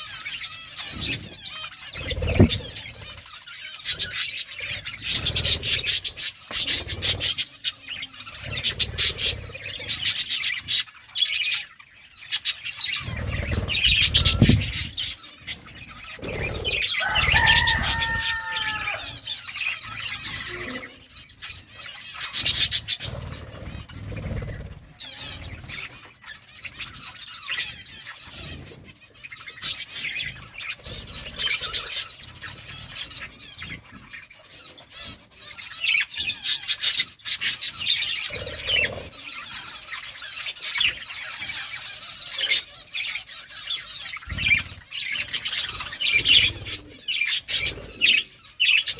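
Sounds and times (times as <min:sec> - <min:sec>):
bird squawk: 0:00.0 - 0:34.3, 0:35.0 - 0:48.9
small birds chirping: 0:00.0 - 0:48.9
wings fluttering: 0:00.8 - 0:07.6, 0:12.9 - 0:19.3, 0:22.2 - 0:27.1.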